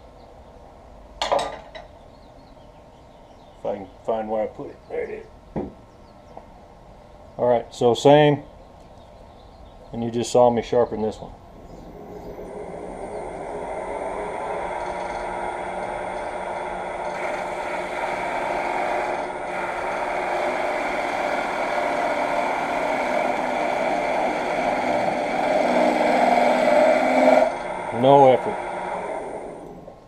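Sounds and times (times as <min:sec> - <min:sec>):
wood lathe whirring: 0:11.5 - 0:30.0
tool scraping wood shavings: 0:11.7 - 0:29.7.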